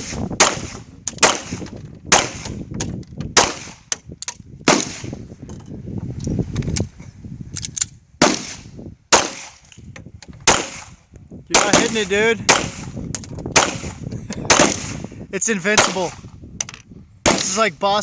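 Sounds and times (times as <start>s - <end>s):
loud pistol shots: 0.0s - 2.6s, 3.4s - 3.9s, 4.6s - 5.2s, 8.2s - 9.6s, 10.4s - 15.1s, 15.7s - 16.3s, 17.2s - 17.7s
faint distant gunshots: 10.5s - 15.0s.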